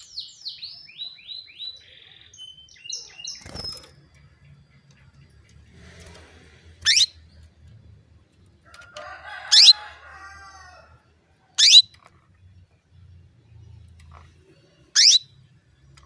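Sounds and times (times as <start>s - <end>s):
canary short sharp calls: 6.8s - 7.1s, 11.6s - 11.8s.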